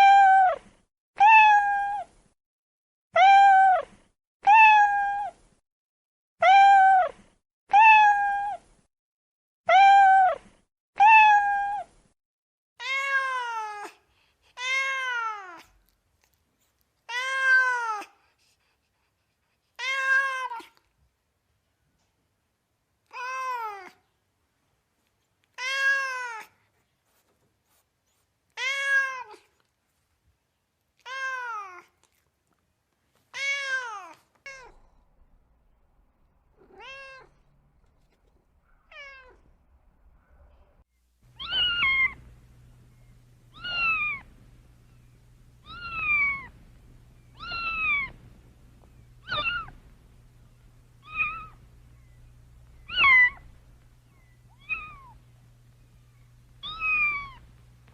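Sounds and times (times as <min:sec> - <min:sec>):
cat high-pitched meows: 0:00.0 - 0:00.6, 0:01.2 - 0:02.1, 0:03.2 - 0:05.4, 0:06.4 - 0:08.6, 0:09.7 - 0:10.4, 0:11.0 - 0:11.9, 0:12.8 - 0:13.9, 0:17.1 - 0:18.1, 0:19.8 - 0:20.8, 0:23.1 - 0:24.0, 0:25.5 - 0:26.5, 0:28.6 - 0:29.5, 0:31.0 - 0:31.8, 0:33.3 - 0:34.8, 0:36.6 - 0:37.4, 0:38.9 - 0:39.4, 0:41.4 - 0:42.2, 0:43.5 - 0:44.3, 0:45.6 - 0:46.5, 0:47.4 - 0:48.2, 0:49.2 - 0:49.8, 0:51.0 - 0:51.6, 0:52.8 - 0:53.6, 0:54.5 - 0:55.2, 0:56.6 - 0:57.4
cat meowing drawn-out: 0:01.2 - 0:02.1, 0:03.2 - 0:05.4, 0:06.4 - 0:08.6, 0:09.7 - 0:10.4, 0:11.0 - 0:11.9
low steady hum: 0:39.4 - 0:57.9.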